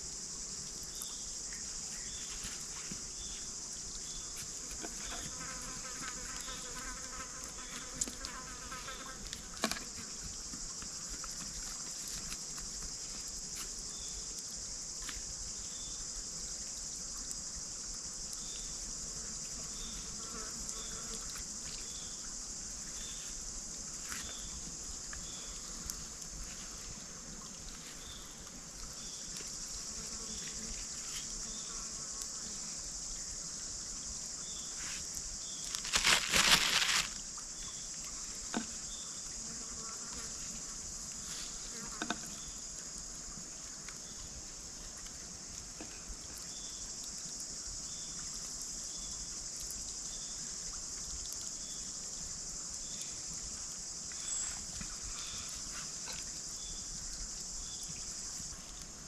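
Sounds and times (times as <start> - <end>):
insect chorus: 0.0 - 59.0.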